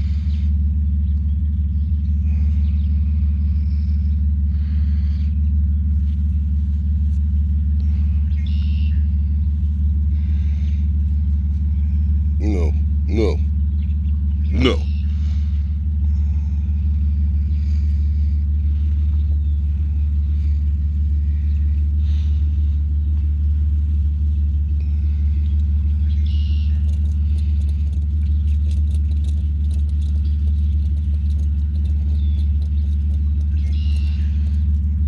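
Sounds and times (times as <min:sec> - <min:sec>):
loud low rumble: 0:00.0 - 0:35.0
faint ticks and rattles: 0:23.1 - 0:35.0.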